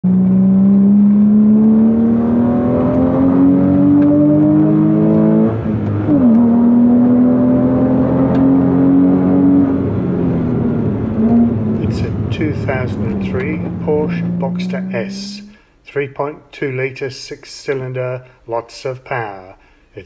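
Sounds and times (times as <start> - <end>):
car engine accelerating: 0.0 - 15.6.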